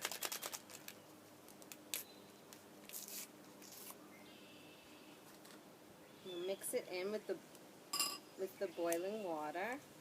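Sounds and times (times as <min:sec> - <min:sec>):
paper packet rustling: 0:00.0 - 0:02.0, 0:02.8 - 0:04.0.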